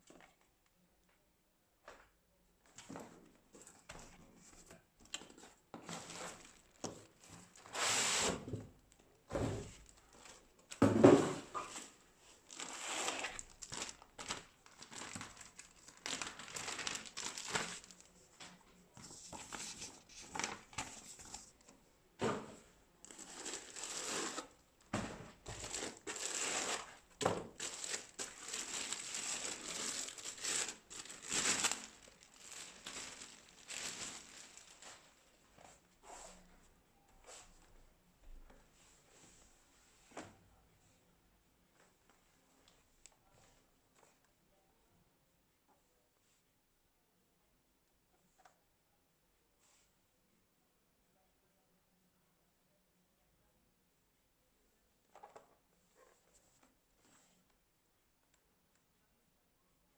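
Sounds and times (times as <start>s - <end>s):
packaging crinkling and rustling: 5.9s - 7.7s, 11.7s - 18.2s, 19.1s - 21.5s, 23.0s - 24.6s, 25.4s - 35.2s.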